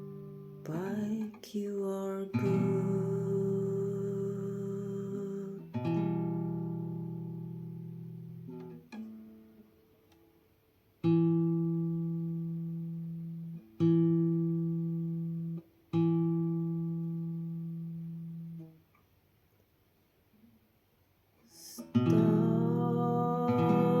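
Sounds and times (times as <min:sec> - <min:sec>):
acoustic guitar chords strummed: 0:02.3 - 0:09.5, 0:21.8 - 0:24.0.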